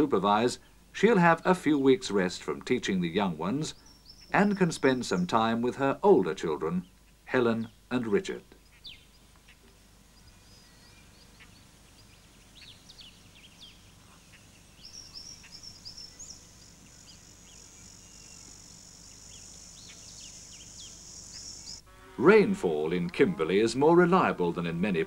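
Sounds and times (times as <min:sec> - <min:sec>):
small birds chirping: 0:02.7 - 0:21.8
steady high-pitched buzz: 0:13.8 - 0:25.0.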